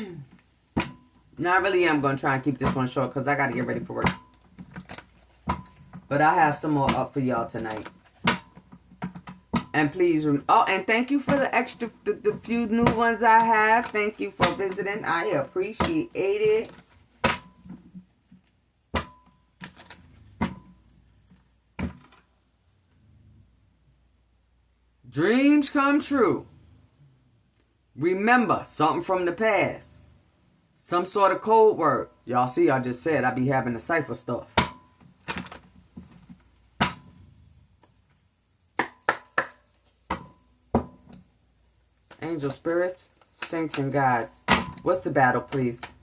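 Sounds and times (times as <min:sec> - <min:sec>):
cards slapping and snapping: 0:38.6 - 0:40.3, 0:42.0 - 0:46.0.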